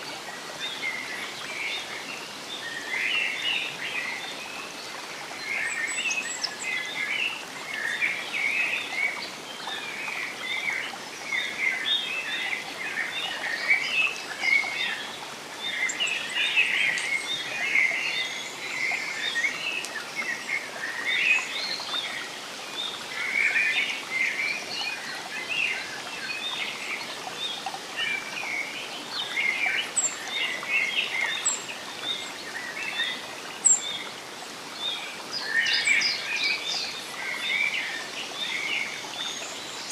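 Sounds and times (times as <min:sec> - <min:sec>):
hiss of water or rain: 0:00.0 - 0:39.9.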